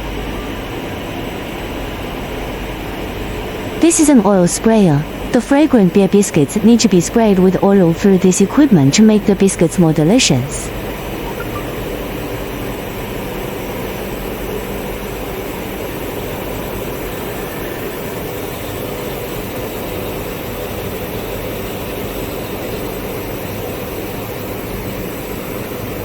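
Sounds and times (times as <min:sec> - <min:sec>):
production line machinery humming: 0:03.6 - 0:12.6.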